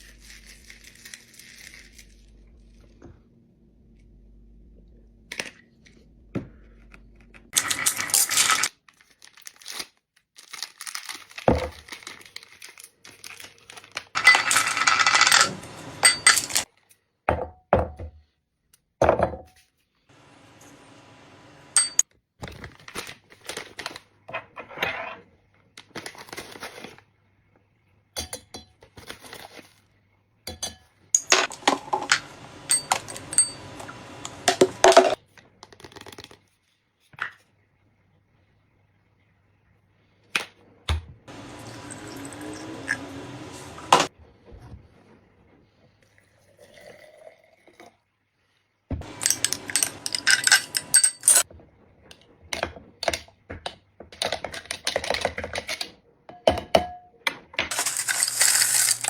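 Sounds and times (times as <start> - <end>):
glassware and utensils clinking: 14.2 - 16.7, 21.7 - 22.0, 30.5 - 35.2, 41.3 - 44.1, 49.0 - 51.4, 57.7 - 59.0.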